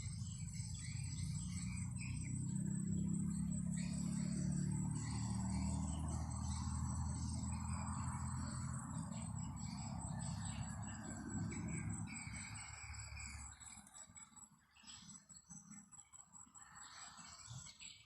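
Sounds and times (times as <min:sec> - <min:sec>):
high-pitched insect trill: 0:00.0 - 0:14.4.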